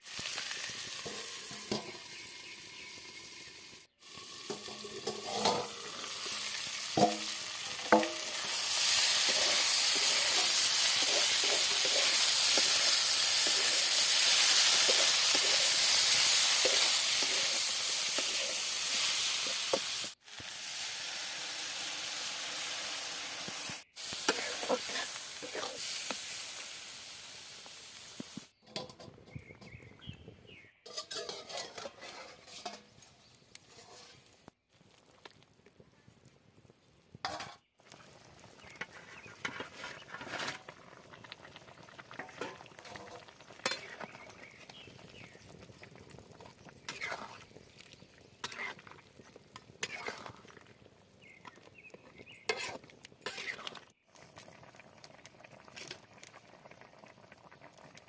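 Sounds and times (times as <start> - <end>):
food sizzling in hot oil: 0.0 - 28.6, 30.8 - 35.5, 37.2 - 58.0
spatula scraping a pan: 4.5 - 20.2, 24.2 - 25.9, 30.8 - 34.5, 38.7 - 40.7, 42.2 - 44.3, 46.8 - 47.5, 48.4 - 49.0, 49.8 - 50.5, 52.3 - 53.8.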